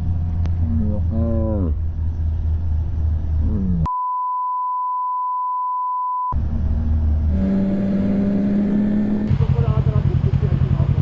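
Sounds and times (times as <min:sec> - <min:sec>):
motorcycle road and engine noise: 0:00.0 - 0:03.7, 0:06.4 - 0:11.0
censor bleep: 0:03.8 - 0:06.4.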